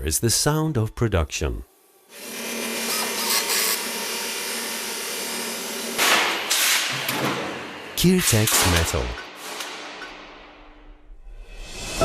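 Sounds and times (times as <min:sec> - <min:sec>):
factory machinery humming: 0:01.7 - 0:11.0.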